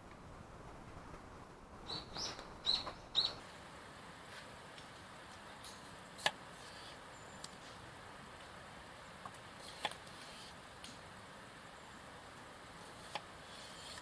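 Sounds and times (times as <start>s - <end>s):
small bird chirping: 1.8s - 3.4s.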